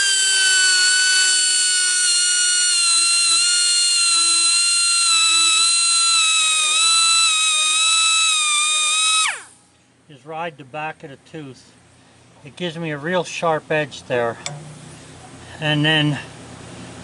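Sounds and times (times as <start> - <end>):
air grinder whining: 0.0 - 9.6.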